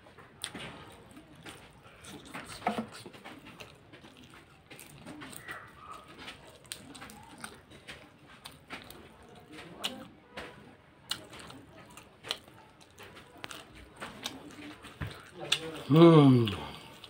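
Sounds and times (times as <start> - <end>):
person chewing noodles: 0.2 - 17.0.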